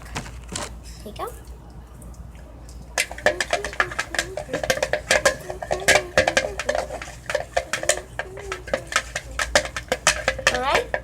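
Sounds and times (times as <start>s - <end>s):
spoons clinking against bowl: 2.8s - 11.0s.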